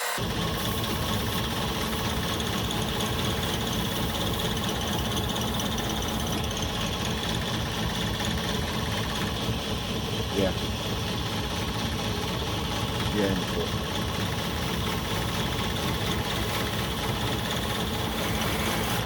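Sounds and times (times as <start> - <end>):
belt grinder sanding metal: 0.0 - 7.3, 14.2 - 19.0.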